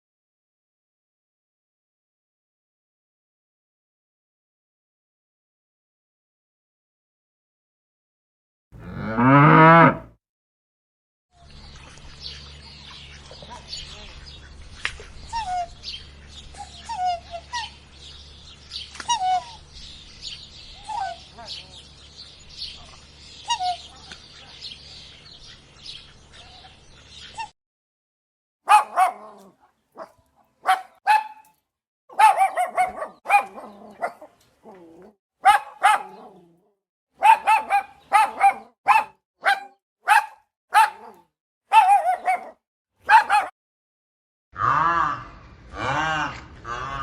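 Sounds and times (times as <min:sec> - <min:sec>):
dog barking: 0:28.7 - 0:31.5, 0:32.1 - 0:34.4, 0:35.4 - 0:36.5, 0:37.2 - 0:43.6.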